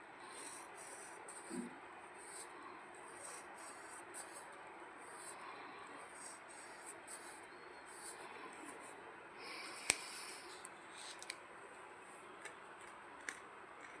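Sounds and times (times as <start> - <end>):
pencil scratching on paper: 0.2 - 8.9.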